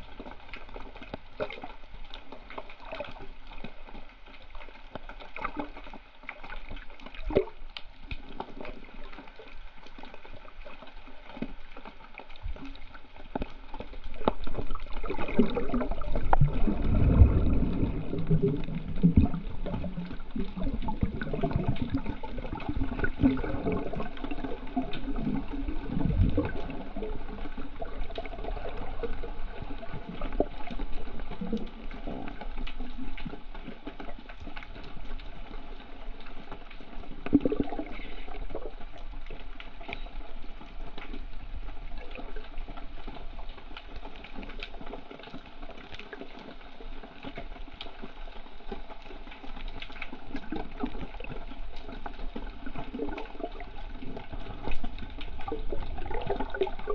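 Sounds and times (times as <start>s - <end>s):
seawater sloshing and gurgling: 0.0s - 56.9s
small splashes: 1.1s - 32.6s.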